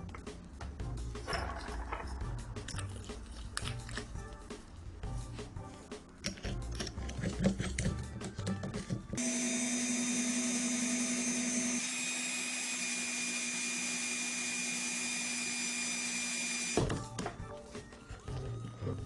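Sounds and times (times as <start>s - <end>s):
power tool motor whining: 9.2s - 16.9s.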